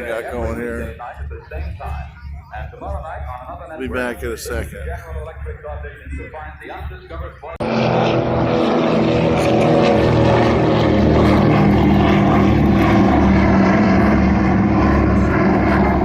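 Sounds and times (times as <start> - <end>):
propeller aircraft engine drone: 0.0 - 16.0.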